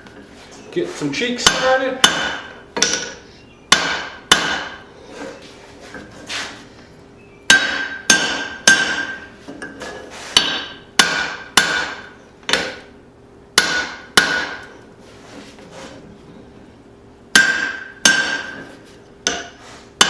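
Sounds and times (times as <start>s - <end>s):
hammer striking steel: 1.4s - 4.8s, 7.5s - 9.3s, 10.4s - 12.8s, 13.6s - 14.7s, 17.3s - 18.6s, 19.2s - 19.6s.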